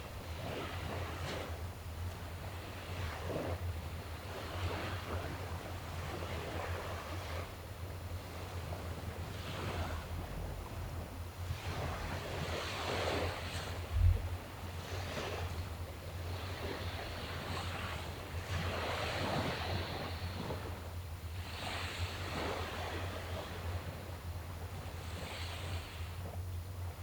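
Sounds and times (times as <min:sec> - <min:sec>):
wind rumble on microphone: 0:00.0 - 0:27.0
low thump: 0:14.0 - 0:14.3.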